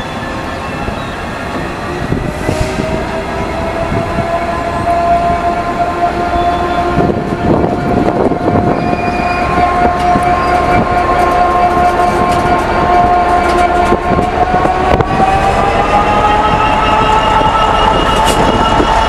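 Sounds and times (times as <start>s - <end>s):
steady metallic squeal: 0.0s - 19.0s
freight train wheels clattering: 6.6s - 19.0s.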